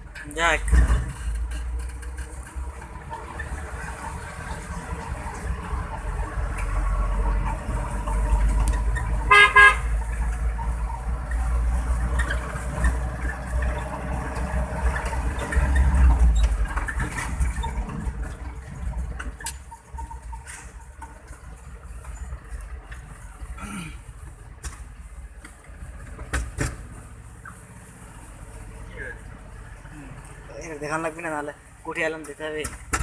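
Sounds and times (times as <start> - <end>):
truck engine rumbling: 0.0 - 33.0
vehicle horn double toot: 9.2 - 10.0.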